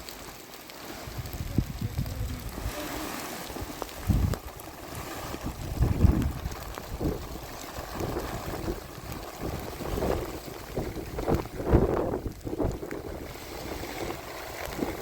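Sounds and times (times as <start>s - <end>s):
heavy rain hiss: 0.0s - 15.0s
wind buffeting microphone: 1.0s - 15.0s.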